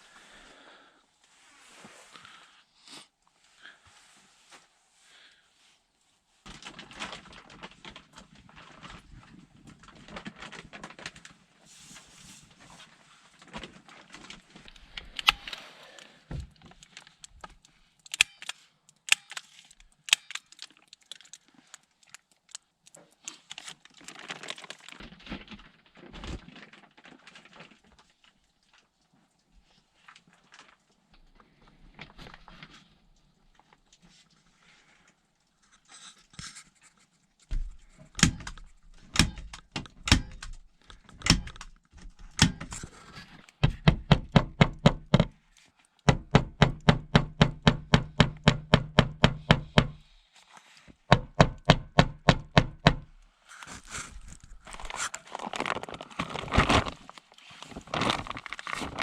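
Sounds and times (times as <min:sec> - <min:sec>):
rustling and crinkling: 0:00.0 - 0:43.9, 0:50.0 - 0:51.1, 0:53.0 - 0:59.0.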